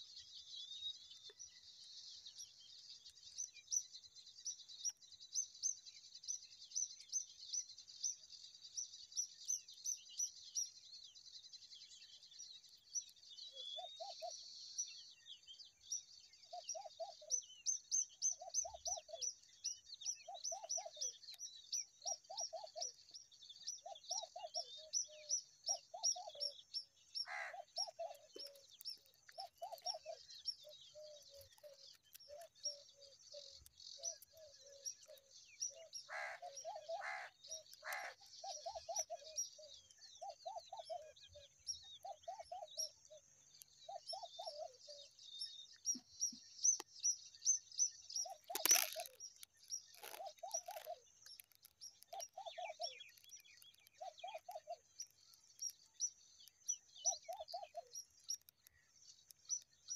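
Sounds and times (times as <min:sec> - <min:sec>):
high thin bird chirps: 0:45.9 - 0:59.9.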